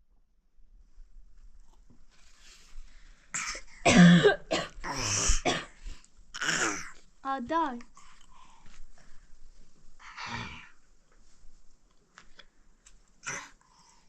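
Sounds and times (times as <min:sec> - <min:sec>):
person coughing: 0:03.4 - 0:05.8.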